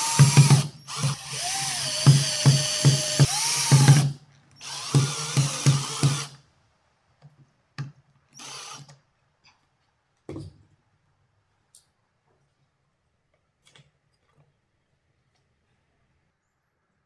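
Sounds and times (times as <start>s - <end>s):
power drill with knocking: 0.0s - 6.3s.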